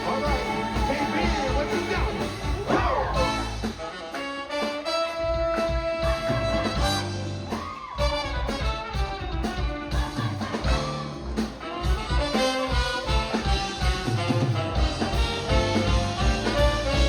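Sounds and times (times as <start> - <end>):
person singing: 0.0 - 3.5
live soul band with brass: 0.0 - 17.0.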